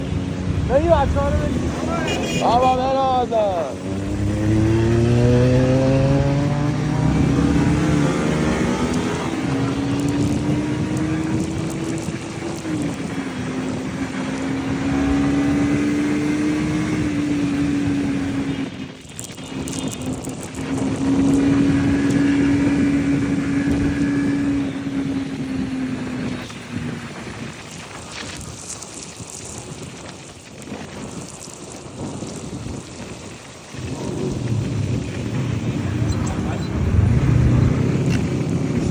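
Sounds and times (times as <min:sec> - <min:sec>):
motorcycles riding past: 0:00.0 - 0:18.7, 0:33.7 - 0:38.9.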